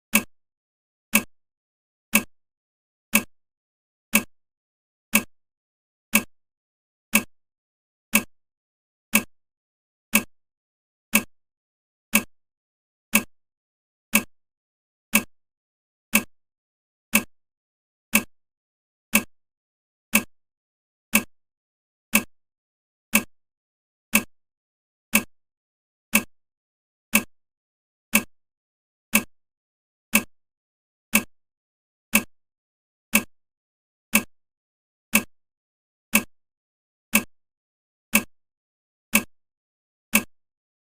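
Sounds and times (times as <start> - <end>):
timer ticking: 0.1 - 0.3, 1.1 - 1.3, 2.1 - 2.3, 3.1 - 3.3, 4.1 - 4.4, 5.1 - 5.4, 6.1 - 6.3, 7.1 - 7.4, 8.1 - 8.4, 9.1 - 9.4, 10.1 - 10.4, 11.1 - 11.3, 12.1 - 12.3, 13.1 - 13.4, 14.1 - 14.4, 15.1 - 15.4, 16.1 - 16.3, 17.1 - 17.3, 18.1 - 18.4, 19.1 - 19.3, 20.1 - 20.3, 21.1 - 21.4, 22.1 - 22.4, 23.1 - 23.4, 24.1 - 24.3, 25.1 - 25.3, 26.1 - 26.4, 27.1 - 27.3, 28.1 - 28.4, 29.1 - 29.4, 30.1 - 30.4, 31.1 - 31.4, 32.1 - 32.4, 33.1 - 33.4, 34.1 - 34.4, 35.1 - 35.4, 36.1 - 36.4, 37.1 - 37.4, 38.1 - 38.4, 39.1 - 39.4, 40.1 - 40.4.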